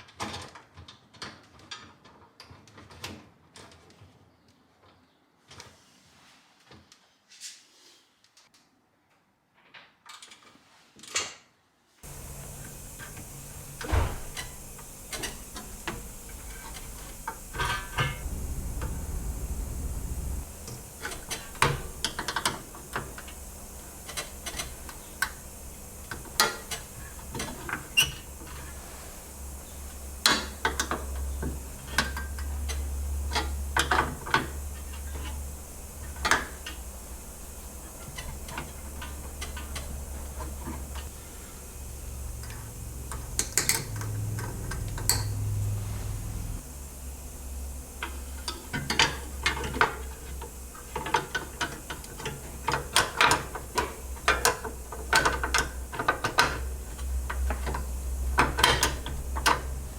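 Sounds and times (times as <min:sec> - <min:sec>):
steady low hum: 0:12.0 - 0:59.9.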